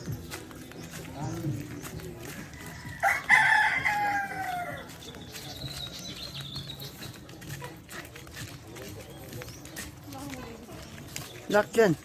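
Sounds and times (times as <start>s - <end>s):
rooster crowing: 2.8s - 4.9s.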